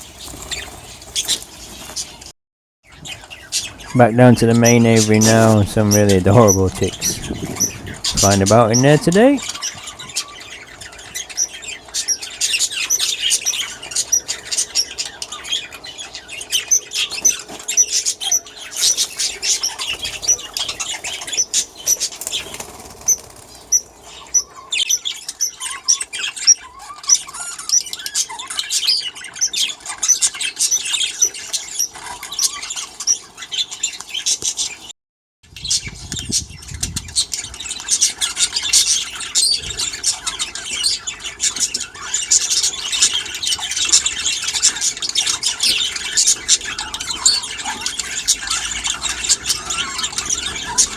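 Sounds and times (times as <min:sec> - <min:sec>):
bird wing flaps: 0:00.0 - 0:02.2, 0:22.0 - 0:23.7
budgerigars chattering and chirping: 0:00.0 - 0:02.3, 0:02.9 - 0:34.9, 0:35.5 - 0:50.9.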